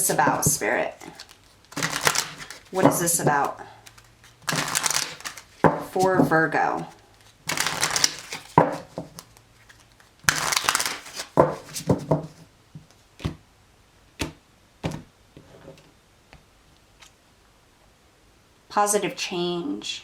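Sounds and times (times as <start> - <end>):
cards being shuffled: 0.0 - 12.4.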